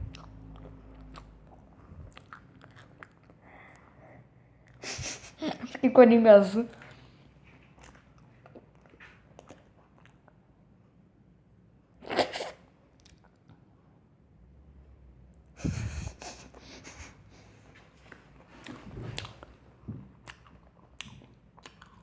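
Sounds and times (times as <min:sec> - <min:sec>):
crunchy chewing: 0:00.1 - 0:03.9, 0:20.2 - 0:22.0.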